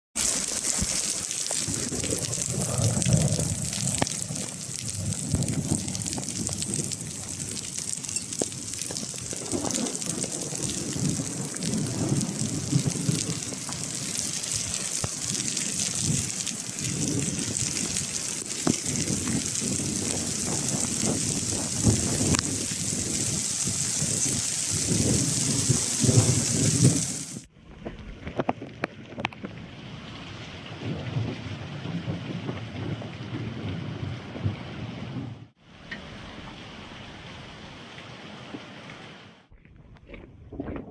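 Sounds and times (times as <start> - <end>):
hailstones ticking: 0.2 - 27.5
rain hissing: 0.2 - 27.5.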